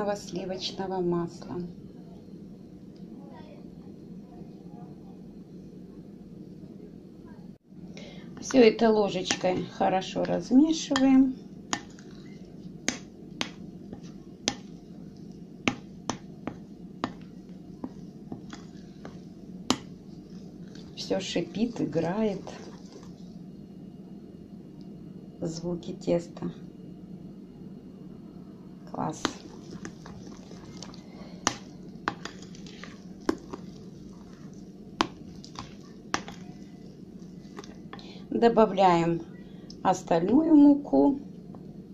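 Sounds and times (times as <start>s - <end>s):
spoon stirring dough: 8.4s - 23.5s, 29.0s - 38.3s.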